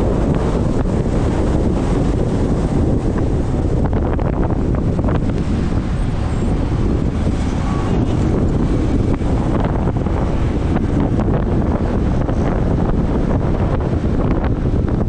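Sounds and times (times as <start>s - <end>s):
motorcycle engine: 0.0s - 15.0s
traffic: 0.0s - 15.0s
wind buffeting microphone: 0.0s - 15.0s.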